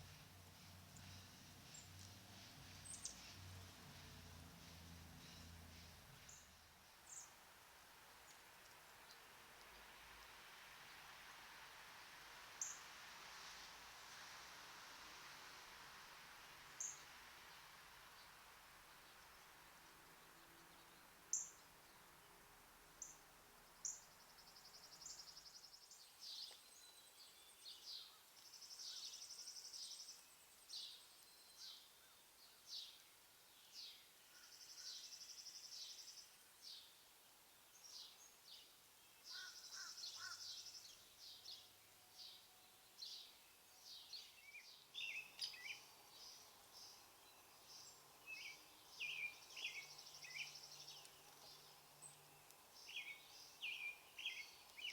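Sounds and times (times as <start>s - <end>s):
bird chirping: 0.0s - 7.4s, 37.7s - 54.9s.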